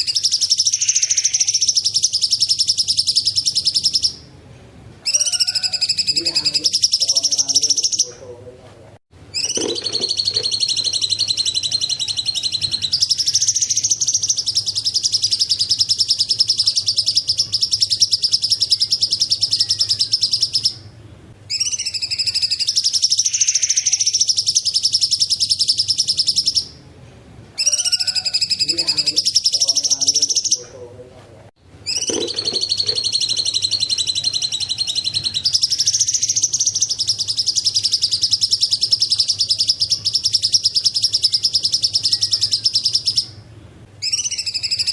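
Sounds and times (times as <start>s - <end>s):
songbird chattering song: 0.0s - 4.3s, 5.0s - 8.4s, 9.3s - 20.9s, 21.5s - 26.8s, 27.6s - 30.9s, 31.8s - 43.4s, 44.0s - 44.9s
faint steady hum: 6.1s - 44.9s.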